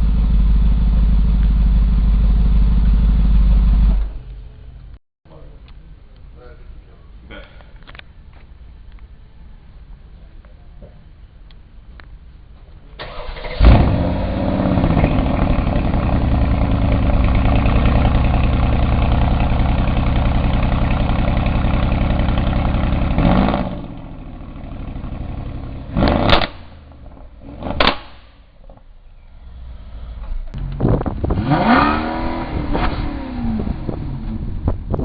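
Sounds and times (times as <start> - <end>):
car engine starting and idling: 0.0 - 5.0, 13.0 - 35.0
short sharp loud bangs: 27.7 - 28.4.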